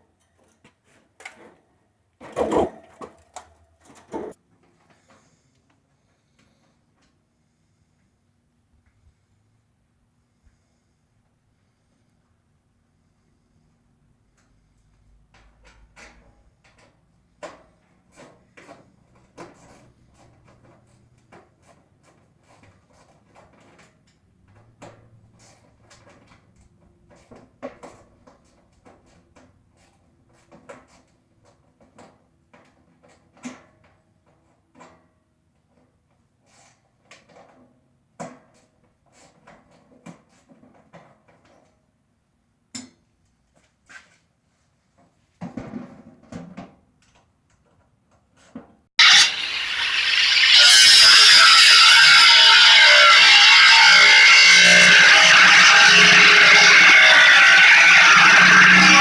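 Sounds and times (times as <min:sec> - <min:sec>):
scrap metal clanking: 0:49.0 - 0:59.0.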